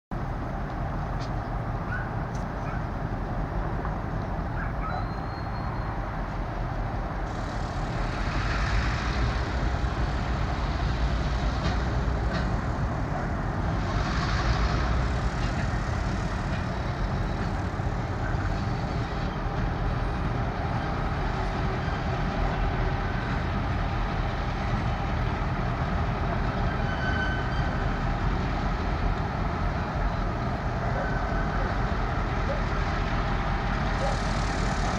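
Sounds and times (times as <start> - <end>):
diesel locomotive engines rumbling: 0.1 - 34.9
hiss: 7.2 - 11.5, 33.8 - 34.9.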